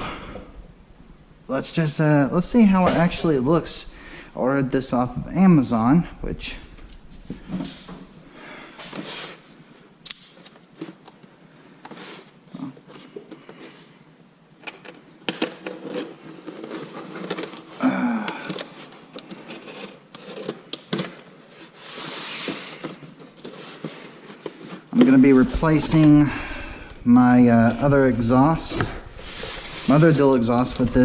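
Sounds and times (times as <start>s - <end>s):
packaging rustling: 21.5s - 31.0s.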